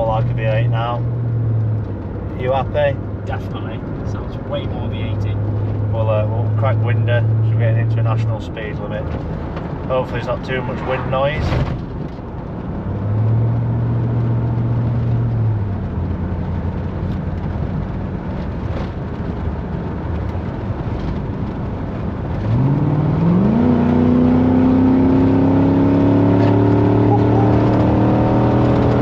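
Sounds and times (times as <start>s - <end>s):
truck engine accelerating: 20.4s - 29.0s.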